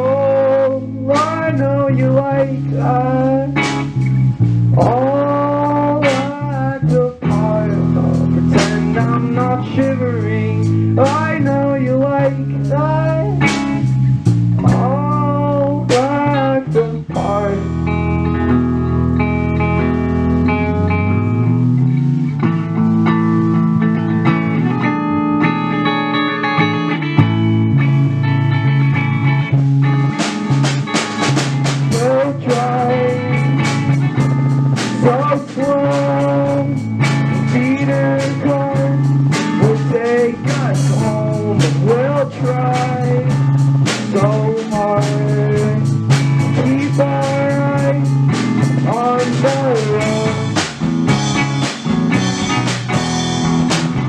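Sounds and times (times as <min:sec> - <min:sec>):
electric guitar chords: 0:00.0 - 0:54.0
rock band playing: 0:00.0 - 0:54.0
sliding lead melody: 0:00.0 - 0:54.0
drums with cymbals: 0:00.9 - 0:18.1, 0:29.8 - 0:54.0.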